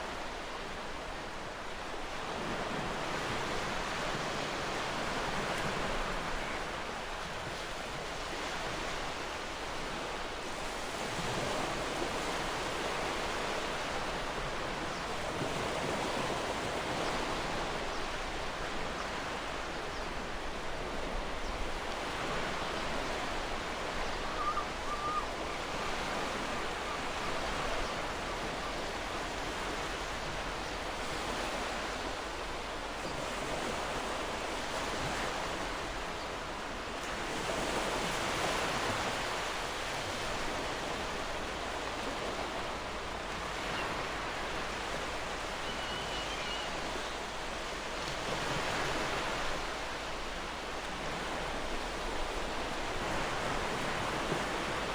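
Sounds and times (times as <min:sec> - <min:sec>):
faint bird chirps: 0:24.1 - 0:26.0, 0:45.6 - 0:47.2.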